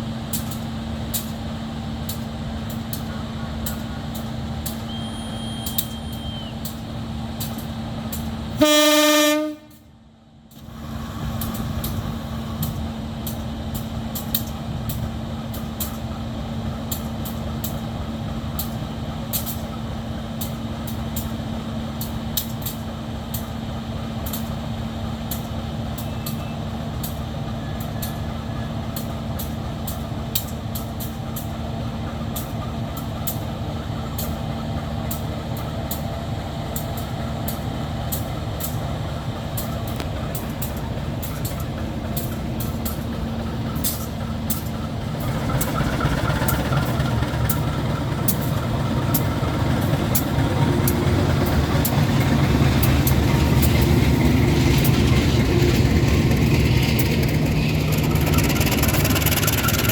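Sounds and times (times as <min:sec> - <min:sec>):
diesel locomotive idling: 0:00.0 - 0:59.9
locomotive horn blast: 0:08.6 - 0:09.9.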